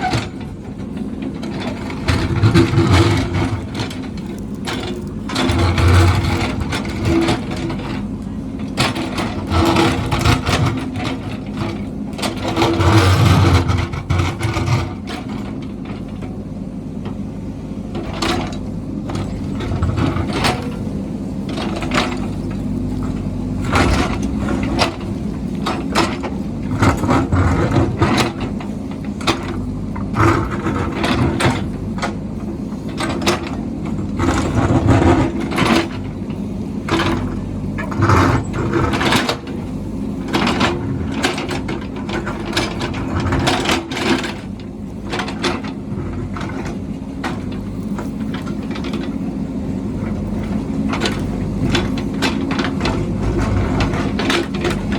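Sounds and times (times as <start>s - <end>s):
metallic clanks and scraping: 0.0s - 8.0s
heavy machine engine running: 0.0s - 54.9s
machine grinding: 1.5s - 7.6s.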